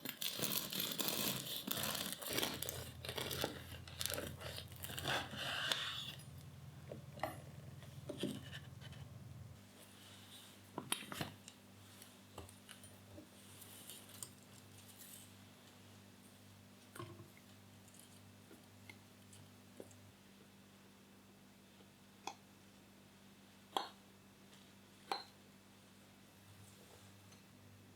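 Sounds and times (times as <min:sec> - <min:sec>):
rustling and crinkling packaging: 0:00.0 - 0:06.6
low steady hum: 0:00.2 - 0:24.7.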